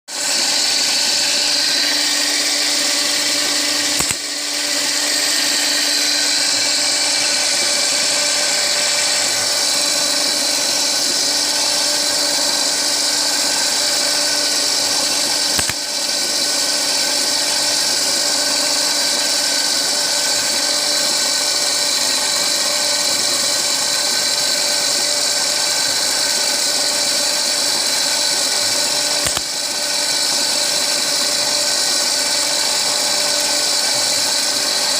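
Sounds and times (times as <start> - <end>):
electric motor high whine: 0.1 - 34.9
machine click: 3.9 - 4.3, 15.5 - 15.8.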